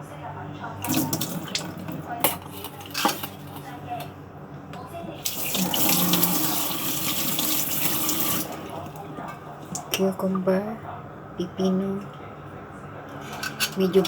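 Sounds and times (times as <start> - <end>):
water running into sink: 0.8 - 2.0, 5.2 - 9.0.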